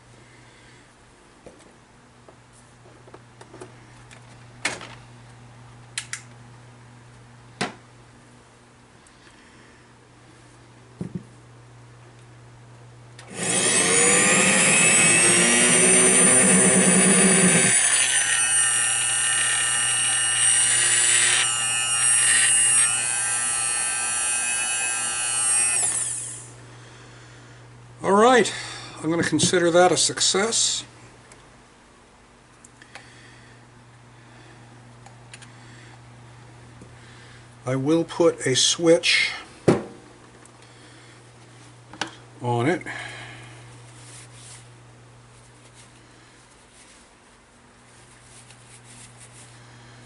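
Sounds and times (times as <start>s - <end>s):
steady low hum: 0.0s - 50.0s
grinder motor whining: 13.2s - 26.6s.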